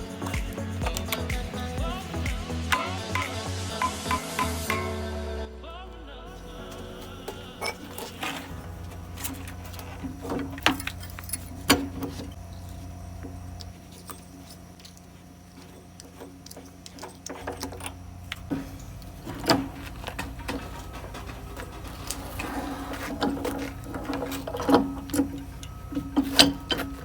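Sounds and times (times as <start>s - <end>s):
low hum: 0.0s - 16.5s
hand tools clinking on metal: 7.5s - 12.7s, 13.6s - 27.0s.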